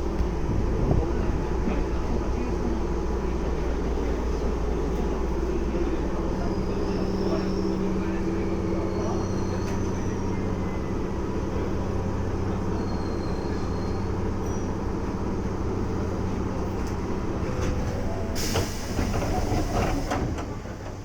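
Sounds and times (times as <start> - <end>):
electric train hum: 0.0 - 21.0
air hiss: 18.4 - 20.1.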